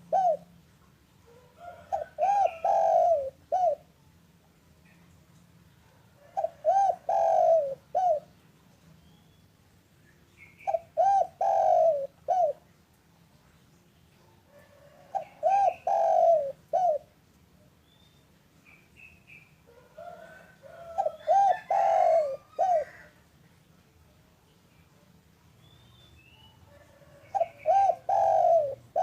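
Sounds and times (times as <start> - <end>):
dove cooing: 0.0 - 0.6, 1.3 - 3.9, 6.2 - 8.4, 10.6 - 12.7, 14.5 - 17.2, 19.7 - 23.2, 26.4 - 29.0
small birds chirping: 4.8 - 14.4, 17.7 - 19.6, 20.7 - 29.0.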